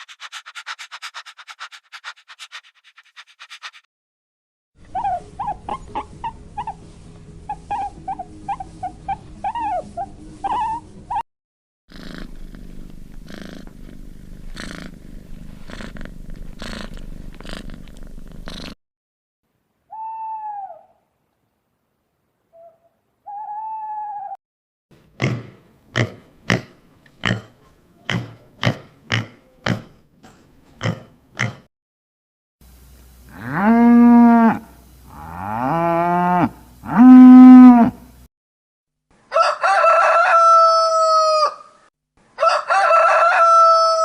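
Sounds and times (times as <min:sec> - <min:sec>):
long pitch-bending animal calls: 0:19.9 - 0:21.0, 0:22.6 - 0:24.4
rooster crowing: 0:39.3 - 0:41.8, 0:42.4 - 0:44.0.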